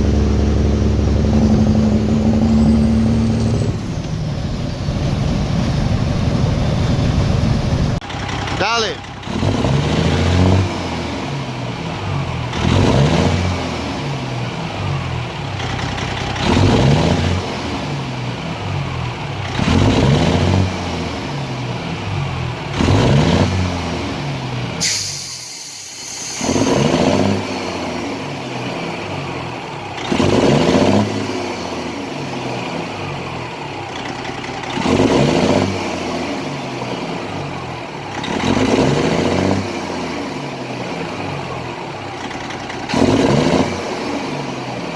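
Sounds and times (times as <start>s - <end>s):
truck engine revving: 0.0s - 44.9s
sharp sound with hiss: 24.8s - 27.5s.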